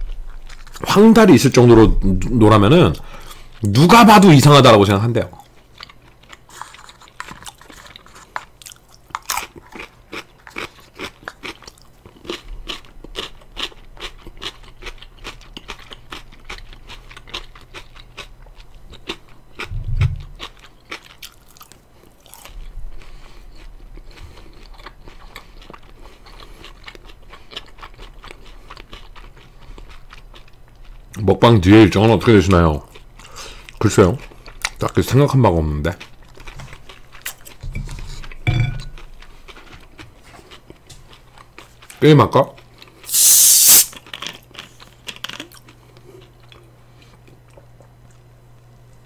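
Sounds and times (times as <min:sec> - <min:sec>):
fried chicken crunching: 0:05.4 - 0:19.7, 0:20.3 - 0:31.3, 0:35.9 - 0:37.6, 0:42.6 - 0:47.3
low dull bump: 0:19.7 - 0:20.3.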